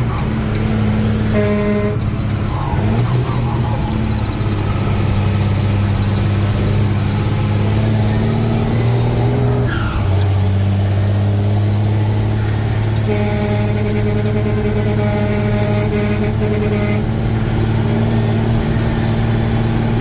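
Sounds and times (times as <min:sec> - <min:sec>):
truck engine running: 0:00.0 - 0:20.0
high steady tone: 0:01.2 - 0:06.4.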